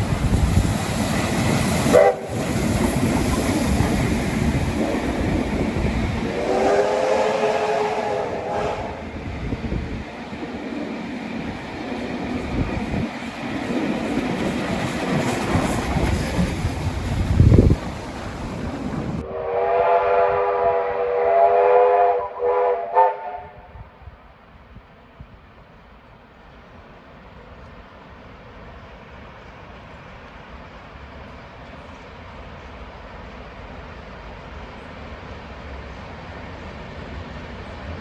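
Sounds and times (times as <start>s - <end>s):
train wheels rumbling: 0.0s - 38.0s
train horn blasts: 1.9s - 2.4s, 6.3s - 9.2s, 19.2s - 24.0s.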